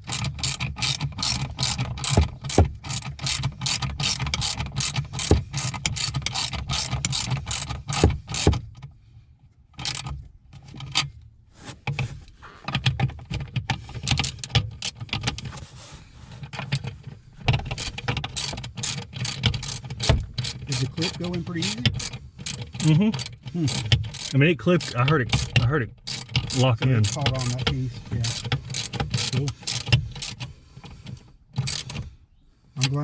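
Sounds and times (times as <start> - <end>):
ratchet wrench clicking: 0.0 - 8.6, 9.8 - 10.2, 17.6 - 30.5, 31.6 - 32.0.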